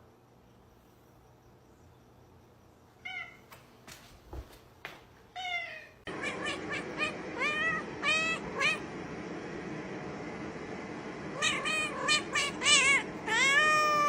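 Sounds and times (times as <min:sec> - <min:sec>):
cat meowing: 0:05.4 - 0:08.8, 0:11.4 - 0:14.0.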